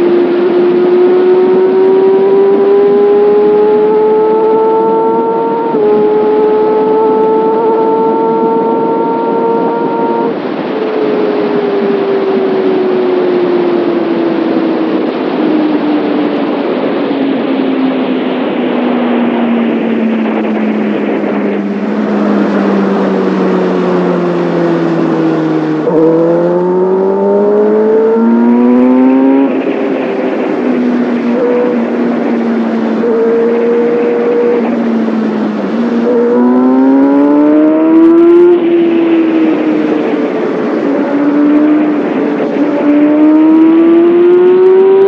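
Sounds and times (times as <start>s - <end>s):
wind rushing over microphone: 0.0s - 45.0s
motorcycle exhaust: 25.3s - 38.8s.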